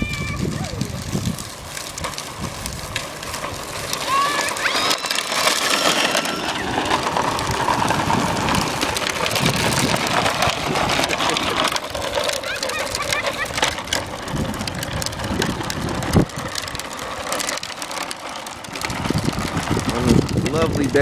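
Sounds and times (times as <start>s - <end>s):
bicycle tyres crunching on rough ground: 0.0s - 21.0s
high-pitched squeals: 3.8s - 9.4s.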